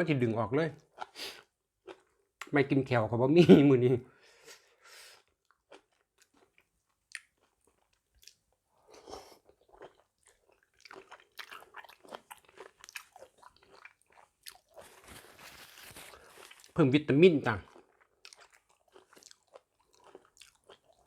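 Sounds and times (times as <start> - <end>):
close-miked crunchy chewing: 5.2 - 16.8, 17.4 - 21.0.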